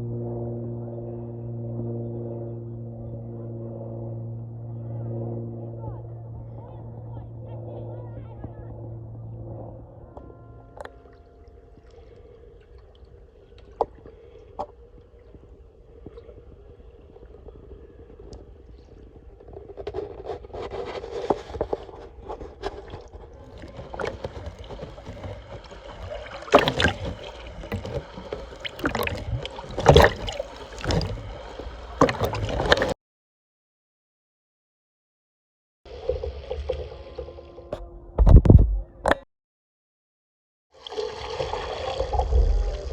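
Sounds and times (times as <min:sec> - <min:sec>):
paddle splashing water: 0:18.5 - 0:33.0.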